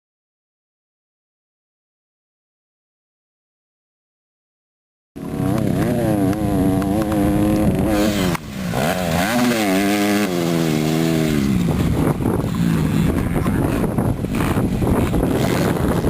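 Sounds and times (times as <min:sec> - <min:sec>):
dirt bike engine revving: 0:05.2 - 0:16.0.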